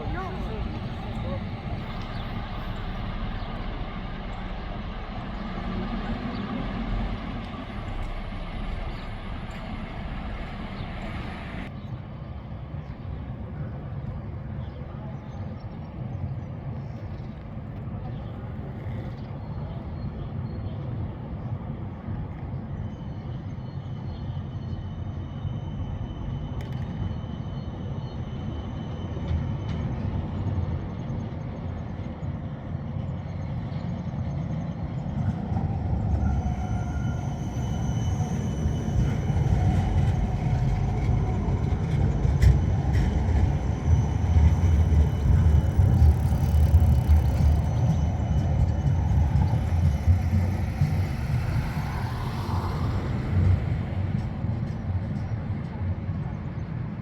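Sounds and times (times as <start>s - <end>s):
faint high whine: 0.0s - 11.7s
low rumble of engines: 0.0s - 57.0s.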